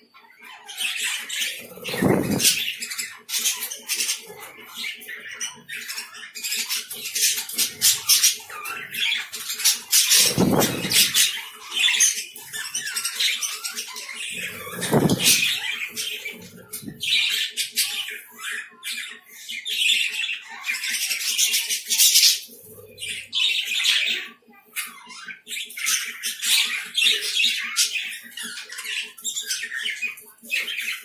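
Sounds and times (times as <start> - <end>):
lovebirds chirping and squawking: 0.0 - 31.0.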